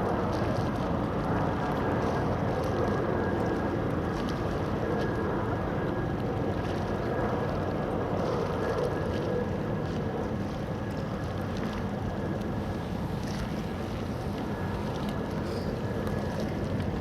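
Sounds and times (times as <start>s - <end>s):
wind rushing over microphone: 12.5s - 17.0s.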